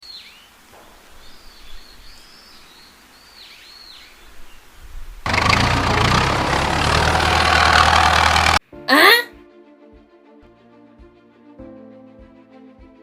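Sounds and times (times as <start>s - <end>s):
birds chirping: 0.0s - 8.6s.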